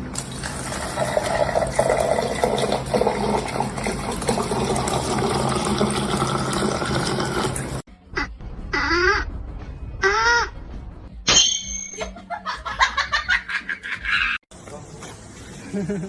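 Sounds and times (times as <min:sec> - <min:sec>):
running water: 0:00.0 - 0:07.8.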